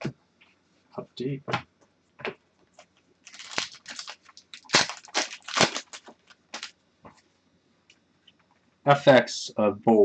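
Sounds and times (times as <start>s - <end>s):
trading cards crinkling and rustling: 2.8s - 6.7s.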